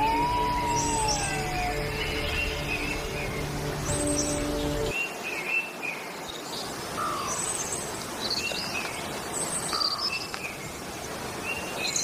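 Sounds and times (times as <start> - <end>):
background music: 0.0 - 5.0
descending bird call: 0.0 - 5.0
birds chirping: 0.0 - 10.8.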